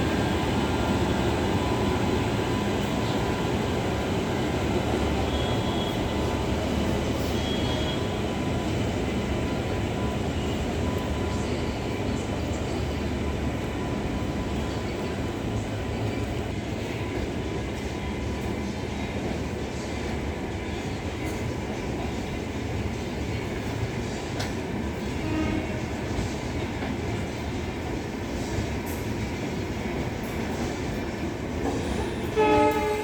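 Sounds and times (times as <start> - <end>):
train wheels rumbling on track: 0.0 - 33.0.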